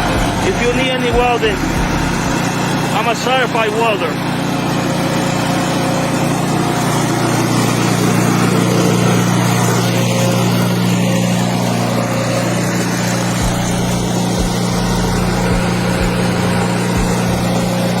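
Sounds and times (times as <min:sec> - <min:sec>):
loud mechanical drone: 0:00.0 - 0:18.0.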